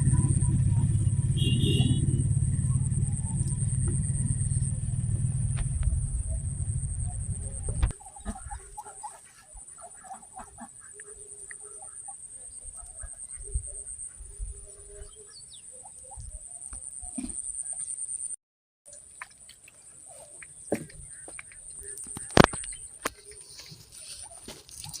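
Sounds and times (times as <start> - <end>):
loud low rumble: 0.0 - 7.9.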